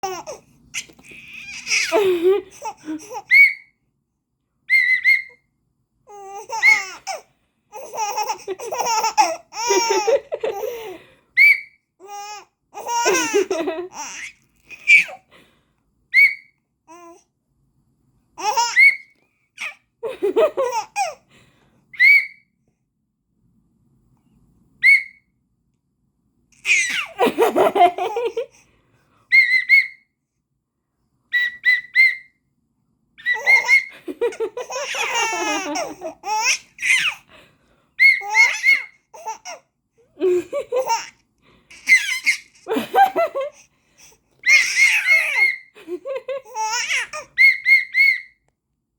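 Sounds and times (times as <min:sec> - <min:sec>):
baby laughing: 0:00.0 - 0:03.6, 0:06.1 - 0:15.2, 0:18.4 - 0:19.0, 0:19.6 - 0:21.2, 0:26.6 - 0:28.5, 0:33.2 - 0:37.2, 0:38.0 - 0:39.6, 0:40.2 - 0:43.6, 0:44.4 - 0:48.2
whistle toots: 0:04.7 - 0:05.4, 0:11.4 - 0:11.8, 0:16.1 - 0:16.6, 0:22.0 - 0:22.5, 0:24.8 - 0:25.3, 0:29.3 - 0:30.0, 0:31.3 - 0:32.3, 0:47.4 - 0:48.4.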